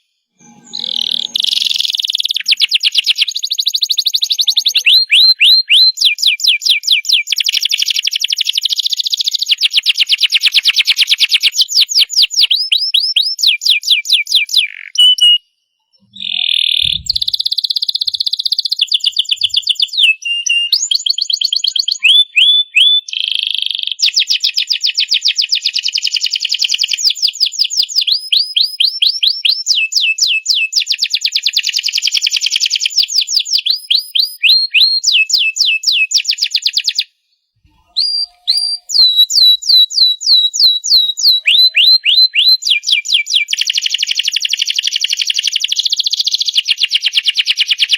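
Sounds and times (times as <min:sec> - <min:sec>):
canary singing trills: 0:00.4 - 0:23.9, 0:37.6 - 0:44.1.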